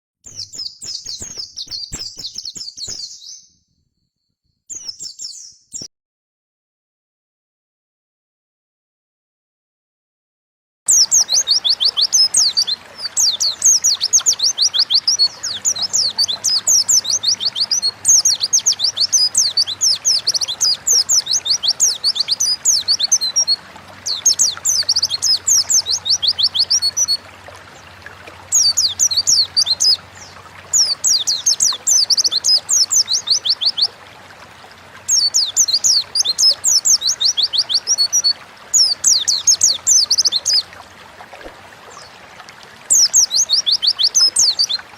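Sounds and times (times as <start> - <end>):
bird twittering: 0.3 - 3.5, 10.9 - 34.0, 35.0 - 40.8, 42.9 - 44.9.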